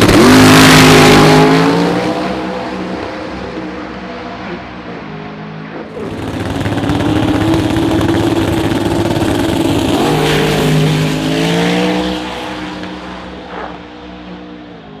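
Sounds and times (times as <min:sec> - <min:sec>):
racing car engine accelerating: 0:00.0 - 0:02.8, 0:06.0 - 0:13.2.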